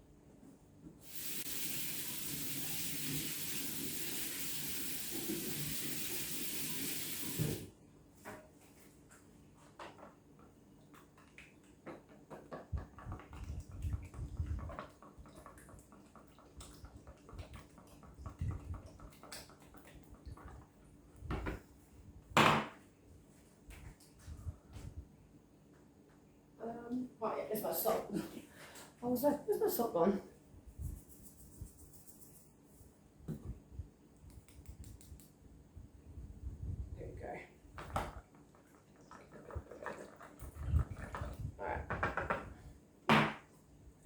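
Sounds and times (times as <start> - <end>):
kitchen tap running: 1.0 - 7.7.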